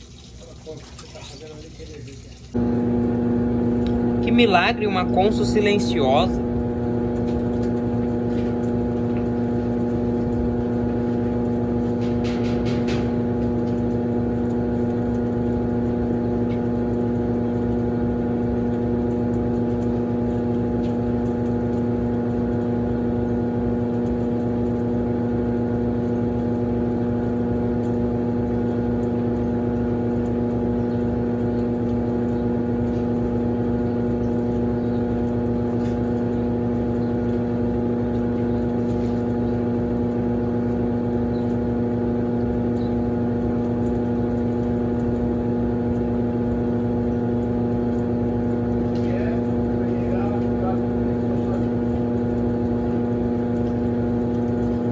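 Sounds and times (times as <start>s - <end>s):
drain pump humming: 0.0s - 54.9s.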